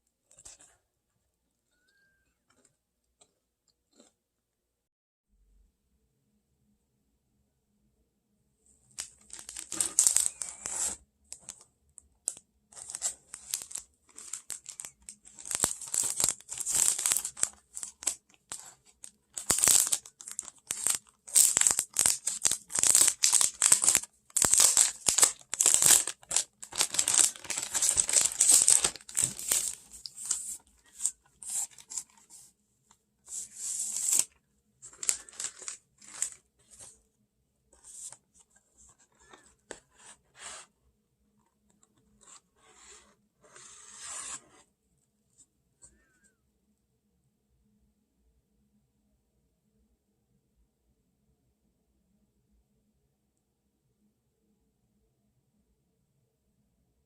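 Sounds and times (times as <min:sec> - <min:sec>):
crinkling and tearing: 0:09.0 - 0:11.6, 0:12.3 - 0:32.4, 0:33.3 - 0:36.9.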